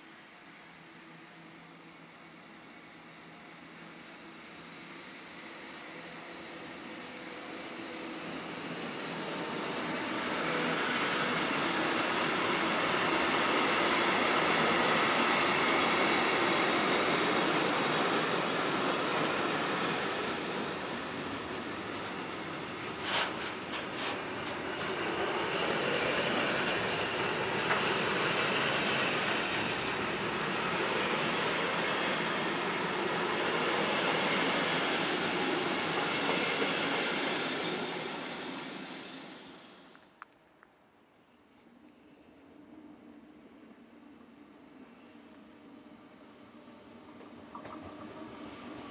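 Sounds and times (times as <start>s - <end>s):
train passing: 0.0s - 48.9s
wheels rolling on rails: 21.4s - 32.2s, 47.2s - 48.9s.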